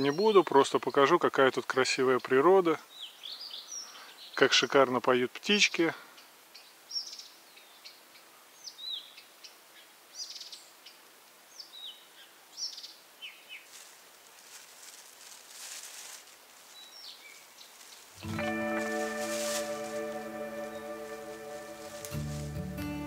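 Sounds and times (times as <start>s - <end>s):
songbirds singing: 0.0s - 22.6s
soft rustle: 13.2s - 22.8s.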